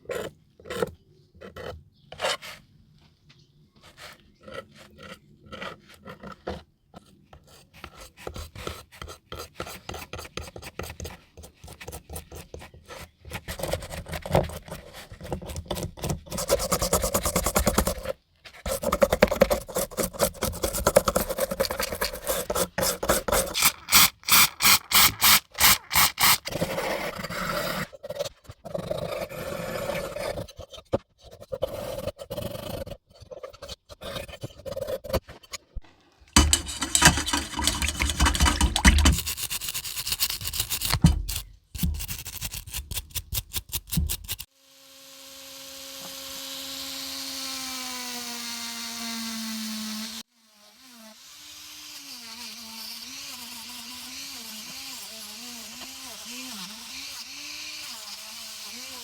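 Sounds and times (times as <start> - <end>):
file rasping on metal: 4.0 - 35.4, 36.4 - 44.5.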